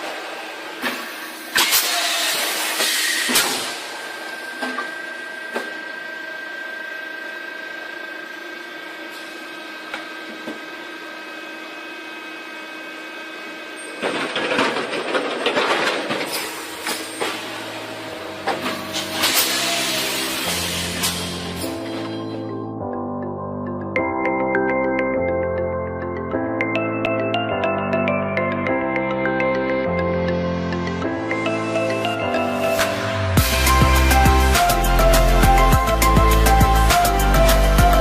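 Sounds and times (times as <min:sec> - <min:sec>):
loud clattering and rattling: 0:14.0 - 0:17.4
machine humming: 0:16.4 - 0:24.0, 0:29.6 - 0:38.0.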